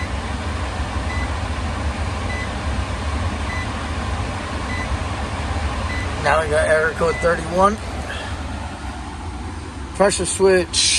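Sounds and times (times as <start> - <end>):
low machine hum: 0.0 - 10.9.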